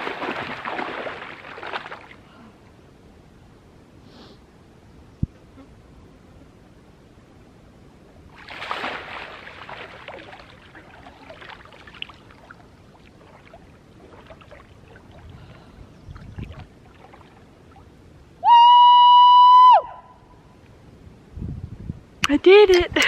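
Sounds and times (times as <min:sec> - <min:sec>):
water dripping and sloshing: 0:00.0 - 0:02.3, 0:08.3 - 0:18.0
water splashing: 0:00.0 - 0:02.3, 0:08.3 - 0:18.0.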